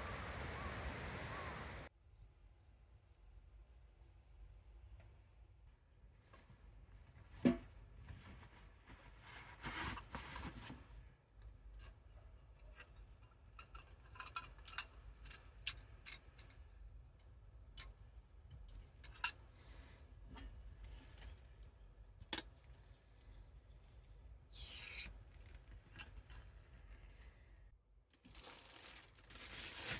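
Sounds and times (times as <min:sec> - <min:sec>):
rustling: 0:06.1 - 0:16.1, 0:22.6 - 0:29.9.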